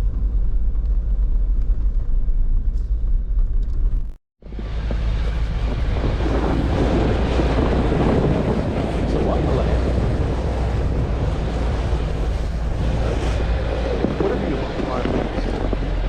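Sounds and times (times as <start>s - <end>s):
engine and drivetrain rumble: 0.0s - 16.0s
loud rushing noise: 4.4s - 16.0s.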